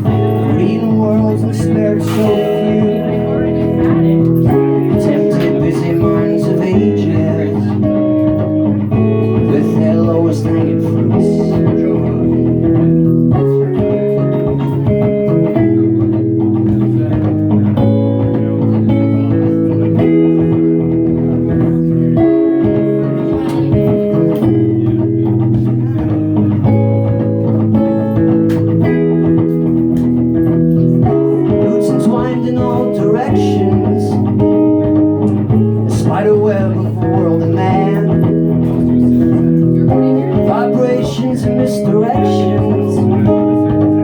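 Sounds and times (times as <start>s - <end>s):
electric guitar sustained notes: 0.0s - 44.0s
low bass notes: 0.0s - 44.0s.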